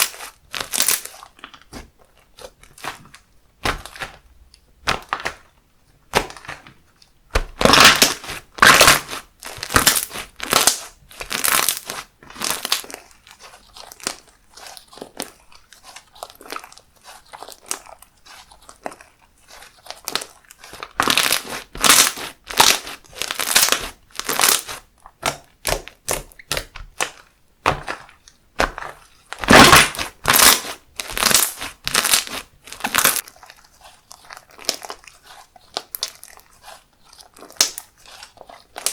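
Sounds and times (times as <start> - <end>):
slime squished by hand: 0.0 - 38.9.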